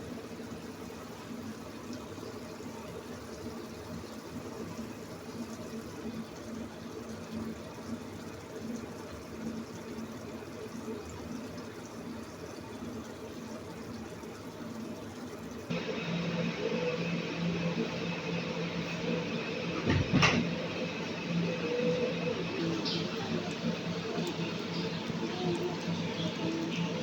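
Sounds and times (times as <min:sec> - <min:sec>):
curry simmering in a pan: 0:00.0 - 0:18.2.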